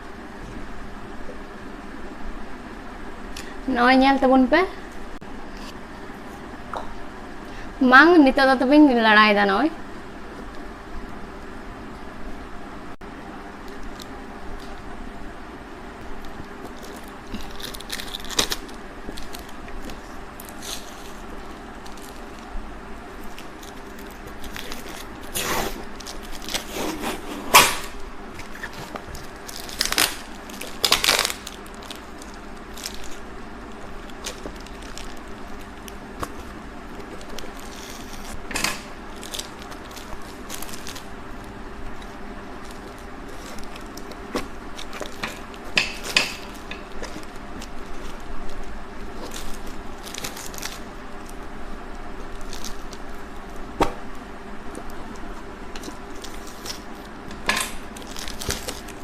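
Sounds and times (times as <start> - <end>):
packaging being opened by hand: 16.1 - 22.5, 23.1 - 51.5, 52.2 - 54.1, 54.7 - 59.0.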